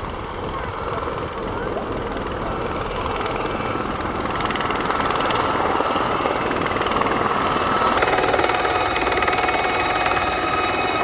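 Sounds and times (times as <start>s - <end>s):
helicopter engine and rotors: 0.0s - 11.0s
high steady whine: 7.0s - 11.0s.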